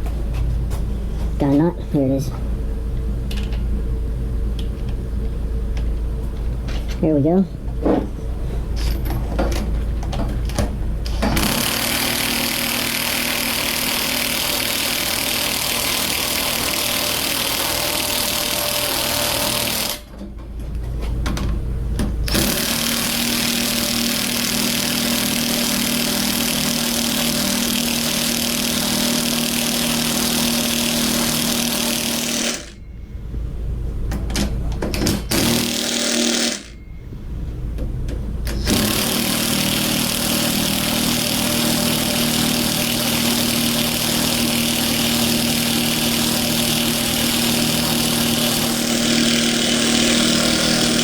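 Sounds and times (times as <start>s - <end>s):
impact wrench hammering: 11.1s - 20.1s, 22.3s - 32.9s, 34.9s - 37.0s, 38.5s - 51.0s.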